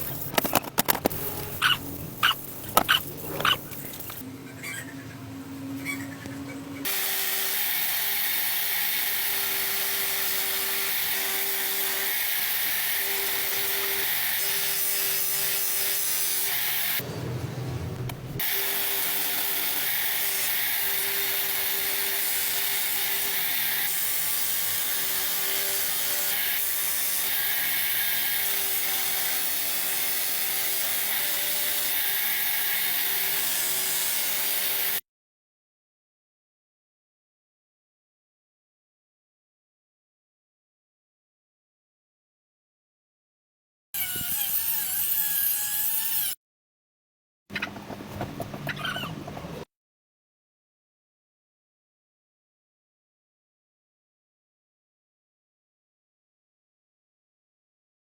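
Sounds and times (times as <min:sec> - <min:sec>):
faint motor hum: 0:01.2 - 0:06.9.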